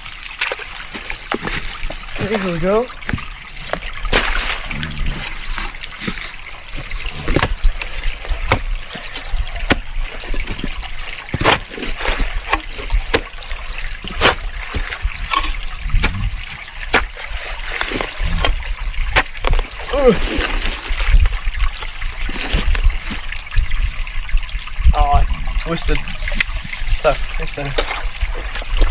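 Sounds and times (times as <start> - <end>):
stream trickling: 0.0 - 28.9
wet clay slaps: 14.0 - 16.3.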